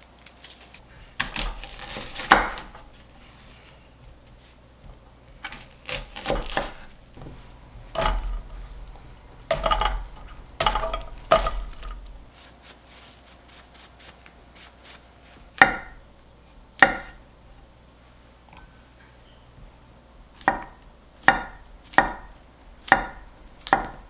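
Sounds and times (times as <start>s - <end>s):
utensils knocking and scraping: 4.8s - 12.3s.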